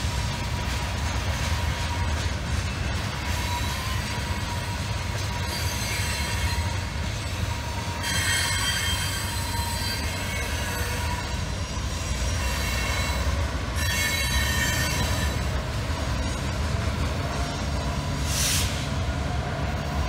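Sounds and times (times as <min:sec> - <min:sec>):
freight train rumbling past: 0:00.0 - 0:20.0
metal squealing: 0:03.3 - 0:11.5, 0:12.2 - 0:15.6.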